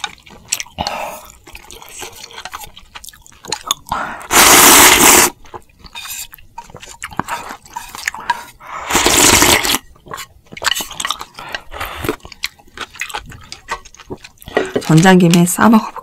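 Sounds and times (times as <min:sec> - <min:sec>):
wet chewing: 0:00.0 - 0:16.0
loud slurp: 0:04.3 - 0:05.4, 0:08.8 - 0:09.8.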